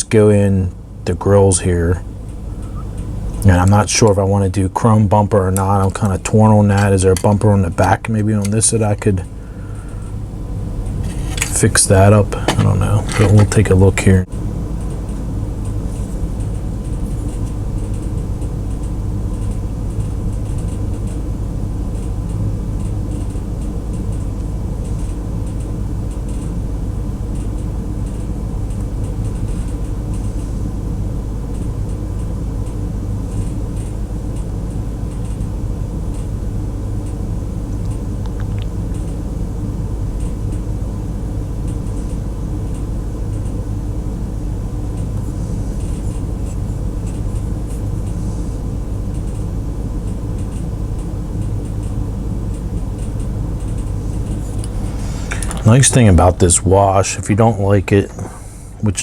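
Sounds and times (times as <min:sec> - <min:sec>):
low background hum: 0:00.0 - 0:59.0
faint small ticks and clicks: 0:21.9 - 0:26.6, 0:31.5 - 0:35.5, 0:49.1 - 0:55.6.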